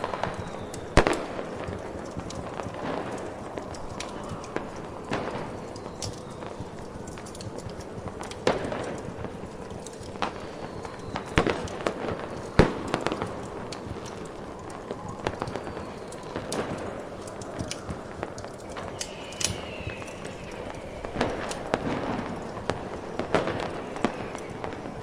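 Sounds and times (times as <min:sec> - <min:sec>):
fireworks popping and crackling: 0:00.0 - 0:25.0
sharp firework bangs: 0:18.7 - 0:25.0.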